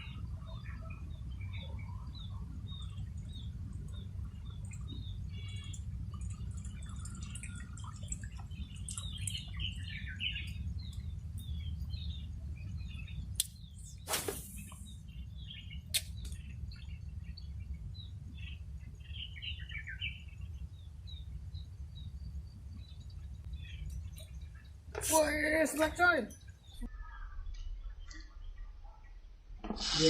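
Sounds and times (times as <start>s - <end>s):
low steady rumble: 0.0s - 24.9s
birds chirping: 0.0s - 29.3s
brief hiss: 14.1s - 14.8s.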